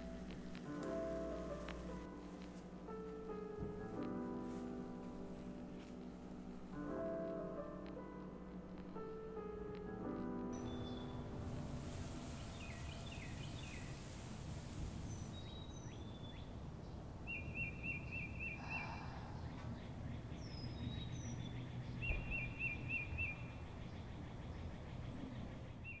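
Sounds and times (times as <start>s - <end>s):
birds calling: 10.6s - 26.0s.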